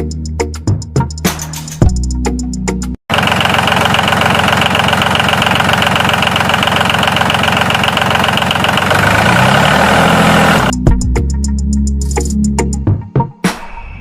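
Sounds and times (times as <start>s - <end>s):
tractor engine knocking: 3.1s - 10.7s.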